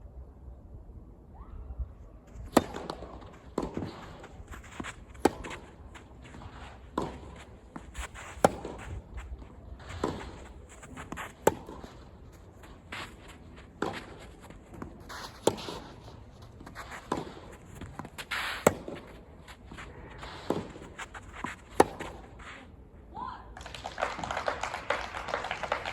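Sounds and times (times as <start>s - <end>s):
racket hitting tennis ball: 2.5s - 22.5s.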